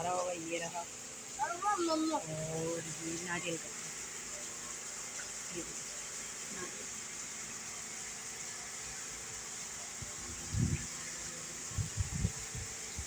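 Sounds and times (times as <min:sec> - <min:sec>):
torrential rain: 0:00.0 - 0:10.0.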